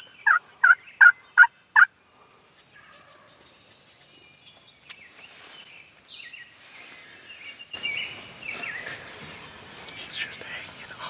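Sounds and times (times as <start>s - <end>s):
birds chirping and warbling: 0.0s - 11.0s
outdoor background noise: 0.0s - 11.0s.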